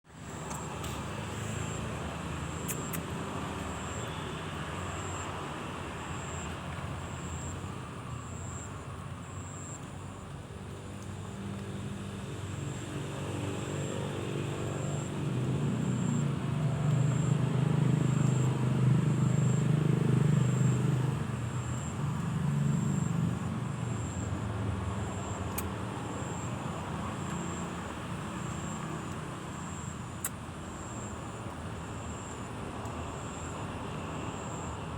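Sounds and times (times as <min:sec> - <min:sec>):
vehicle engine running: 0:13.4 - 0:30.2.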